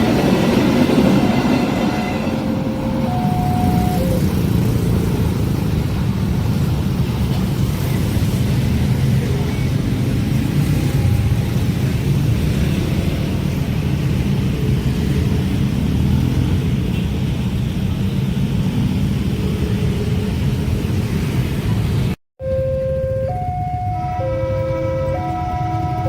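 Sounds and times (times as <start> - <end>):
train passing rumble: 0.0 - 26.0.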